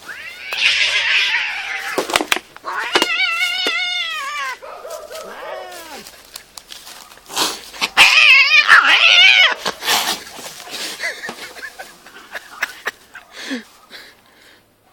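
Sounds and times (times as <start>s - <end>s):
cats yowling and screeching: 0.0s - 6.1s, 7.8s - 10.3s
clicks and rustles: 1.8s - 3.8s, 6.0s - 8.0s.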